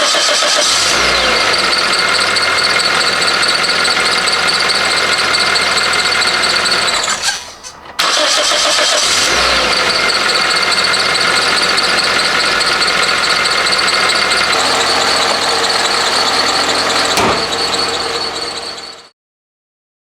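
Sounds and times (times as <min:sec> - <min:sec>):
car engine running: 0:00.0 - 0:19.1
high whine: 0:10.5 - 0:19.1.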